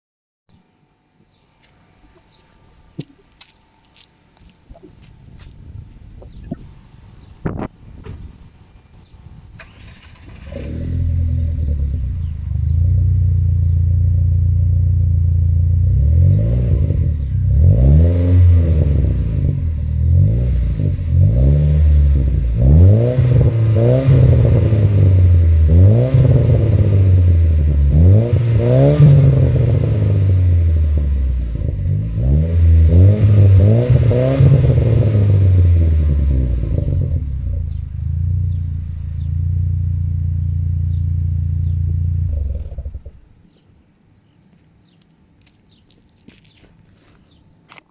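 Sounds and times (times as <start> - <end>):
car engine starting and revving: 9.6 - 43.2.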